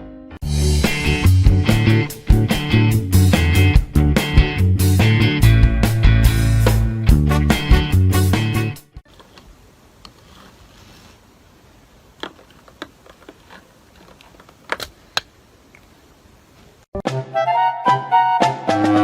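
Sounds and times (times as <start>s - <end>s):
music: 0.0s - 9.0s, 17.0s - 19.0s.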